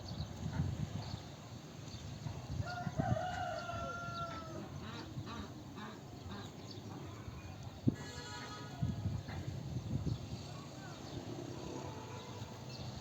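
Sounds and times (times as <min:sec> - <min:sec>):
rooster crowing: 0:02.6 - 0:04.6.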